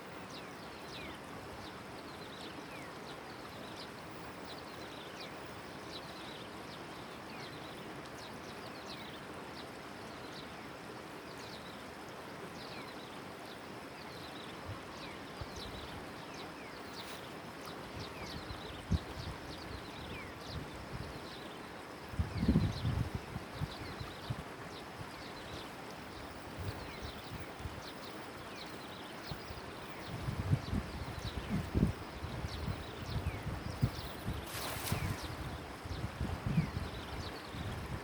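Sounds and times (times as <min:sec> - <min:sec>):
birds chirping: 0:31.2 - 0:37.6
river water rushing: 0:34.1 - 0:36.0.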